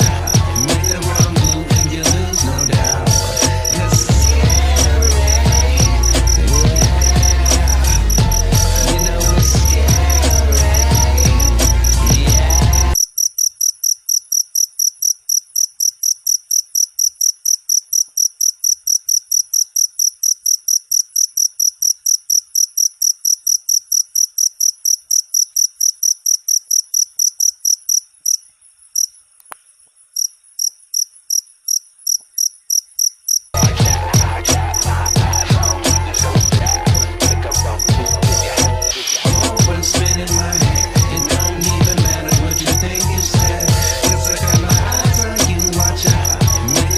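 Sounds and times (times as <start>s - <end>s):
music: 0.0s - 13.0s, 33.6s - 46.9s
cricket chirping: 0.0s - 46.9s.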